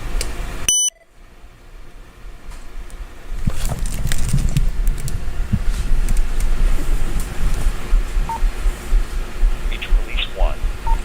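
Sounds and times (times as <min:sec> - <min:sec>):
short high electronic beep: 0:00.7 - 0:01.0
low rumbling: 0:03.0 - 0:11.0.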